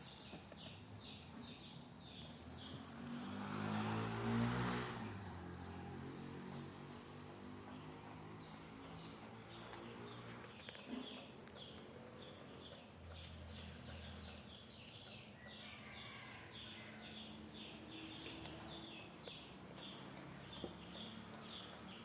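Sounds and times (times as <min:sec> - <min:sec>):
faint bird chirping: 0:07.7 - 0:22.0.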